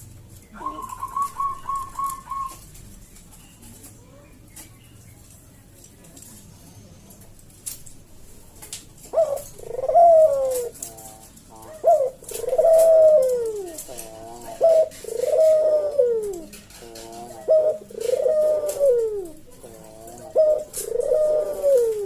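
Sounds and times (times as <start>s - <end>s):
dove cooing: 0.5s - 2.8s, 9.0s - 22.0s.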